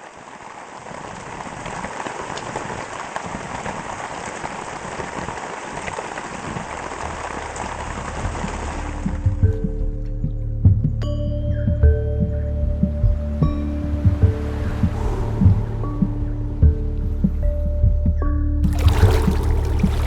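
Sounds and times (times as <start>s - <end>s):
steady rain falling: 0.0s - 10.6s.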